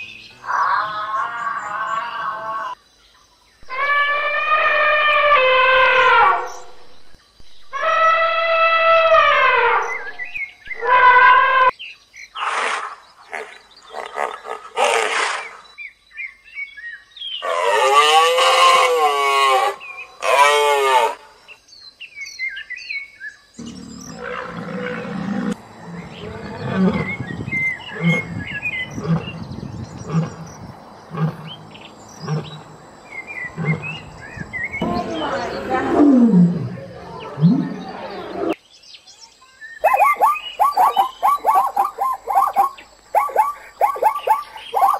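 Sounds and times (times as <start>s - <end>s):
long wavering animal call: 3.6s - 6.7s, 7.7s - 11.7s, 39.8s - 44.9s
trumpet-like animal call: 3.7s - 6.8s, 7.7s - 11.7s
small birds chirping: 21.5s - 44.9s
lion grunting: 23.6s - 34.4s.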